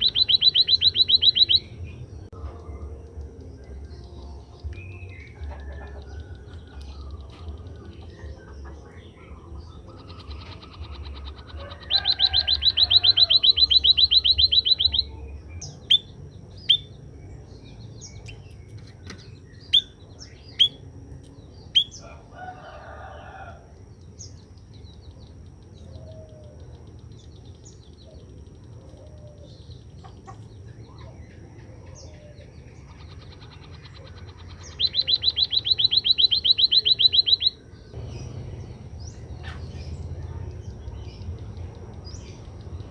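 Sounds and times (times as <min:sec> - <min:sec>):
bird high trills: 0:00.0 - 0:01.8, 0:09.9 - 0:15.2, 0:31.8 - 0:40.0
sharp bird chirps: 0:00.0 - 0:22.5, 0:24.0 - 0:42.9
low steady hum: 0:00.0 - 0:42.9.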